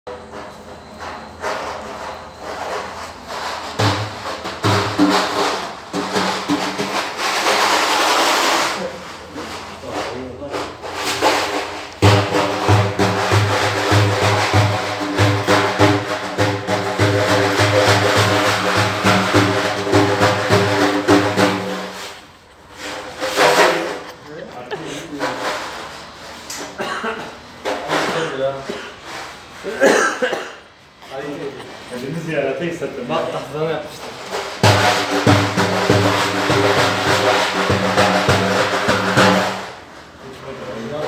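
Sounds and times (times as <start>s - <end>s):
frame drum beats: 3.6s - 24.1s, 34.3s - 40.2s.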